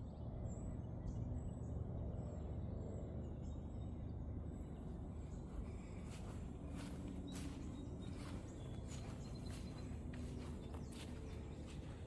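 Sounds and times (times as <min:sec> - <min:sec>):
steady low rumble: 0:00.2 - 0:12.0.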